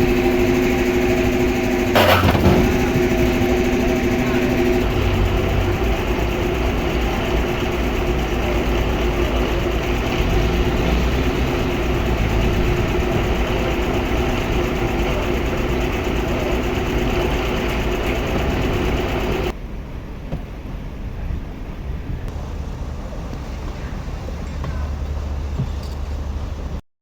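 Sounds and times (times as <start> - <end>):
sawmill machinery drone: 0.0 - 19.6, 22.3 - 26.8.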